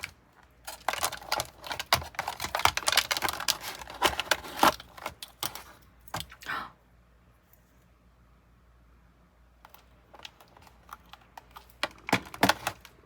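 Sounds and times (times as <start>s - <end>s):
plastic packaging clicks and rustles: 0.0s - 6.4s, 9.6s - 13.0s.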